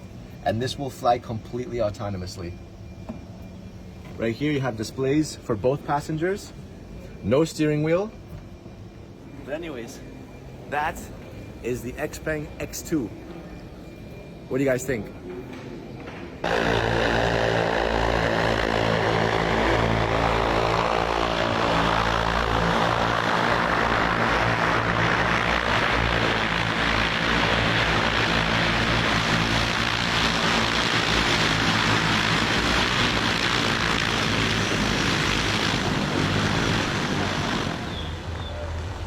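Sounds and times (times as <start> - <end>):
electric propellers whirring: 15.9 - 39.0.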